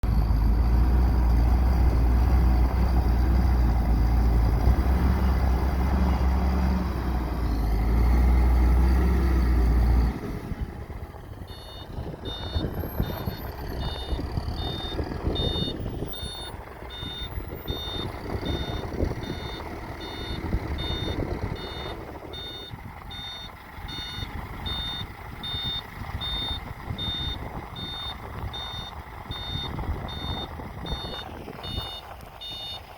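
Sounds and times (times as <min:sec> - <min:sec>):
diesel engine running: 0:00.0 - 0:32.9
back-up alarm beeping: 0:11.5 - 0:32.9.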